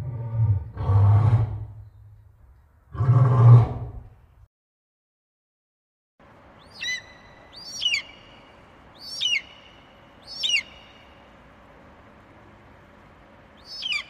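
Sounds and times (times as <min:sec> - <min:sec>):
eagle high piping calls: 0:06.6 - 0:11.3, 0:13.6 - 0:14.0.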